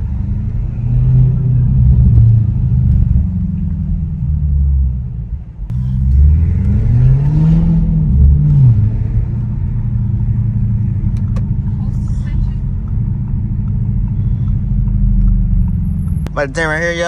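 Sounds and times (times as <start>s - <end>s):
car exhaust rumbling: 0.0s - 17.0s.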